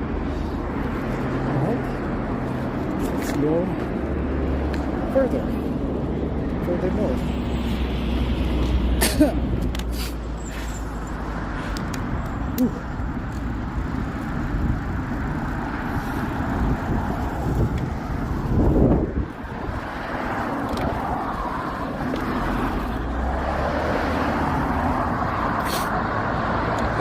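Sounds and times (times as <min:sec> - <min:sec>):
bicycle tyre noise: 0:13.2 - 0:23.5
wind rushing: 0:14.6 - 0:26.6.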